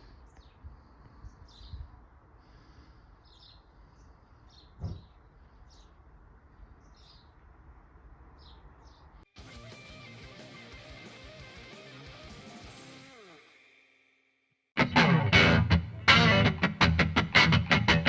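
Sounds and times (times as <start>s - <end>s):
small birds chirping: 0.0s - 9.3s.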